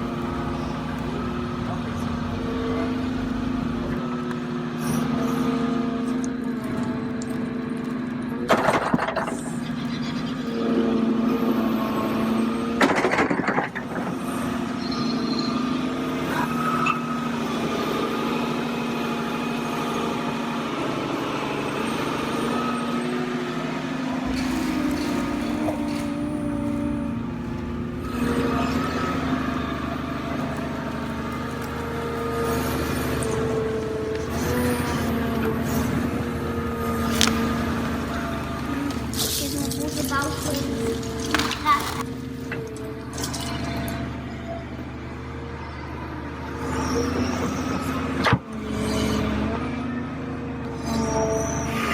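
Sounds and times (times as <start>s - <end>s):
heavy engine running: 0.0s - 22.4s, 24.2s - 51.9s
loud noisy bursts: 24.2s - 40.9s.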